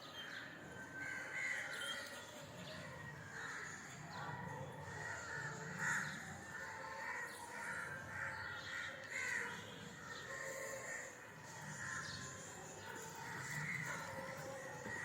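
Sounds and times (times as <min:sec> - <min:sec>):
crows cawing: 0:05.1 - 0:09.6.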